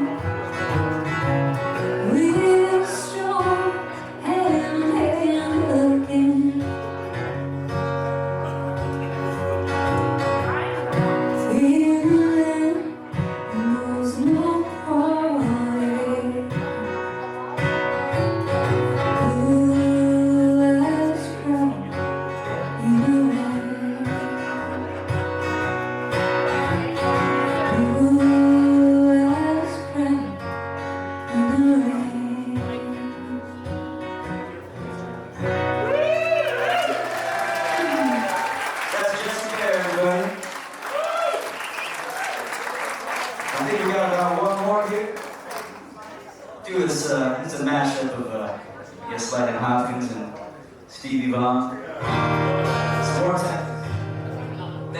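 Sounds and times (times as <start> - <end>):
guitar accompaniment: 0.0 - 54.9
person singing: 1.8 - 6.9, 11.2 - 17.0, 19.0 - 25.1, 26.5 - 30.6, 31.2 - 34.2.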